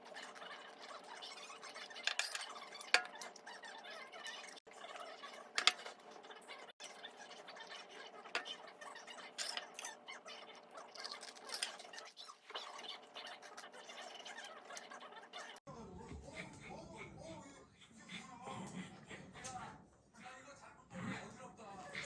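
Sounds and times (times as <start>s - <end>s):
household objects clinking and scraping: 0.0s - 15.6s.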